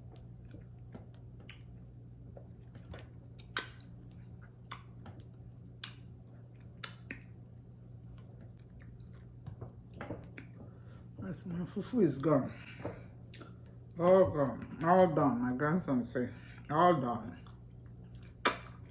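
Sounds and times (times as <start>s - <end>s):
faint low hum: 0.0s - 18.9s
wet chewing mouth smacks: 0.2s - 1.9s, 3.3s - 7.4s, 13.3s - 13.7s, 17.4s - 18.9s.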